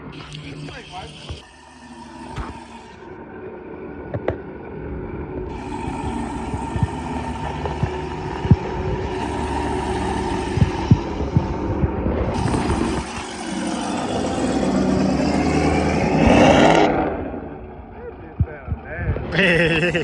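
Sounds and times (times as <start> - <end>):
truck engine rumbling: 0.0 - 20.0
sharp exhaust pops: 5.4 - 16.6.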